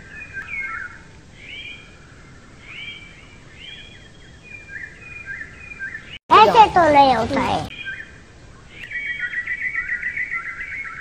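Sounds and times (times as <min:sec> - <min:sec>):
faint steady hiss: 0:00.0 - 0:05.4
songbirds chirping: 0:00.0 - 0:11.0.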